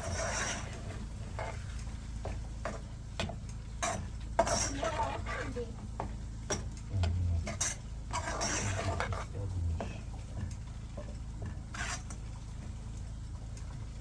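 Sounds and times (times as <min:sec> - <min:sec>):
dull low thuds: 0:06.9 - 0:10.3.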